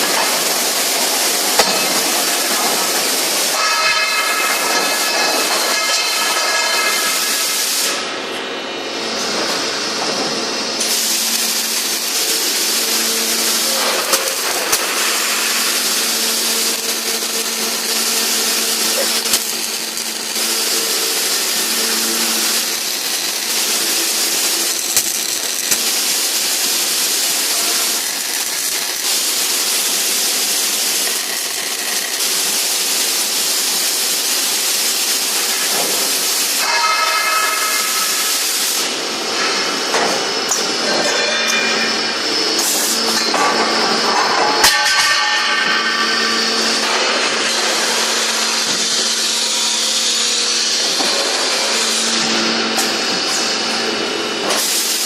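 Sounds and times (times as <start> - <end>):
welding machine hissing: 0.0 - 55.0.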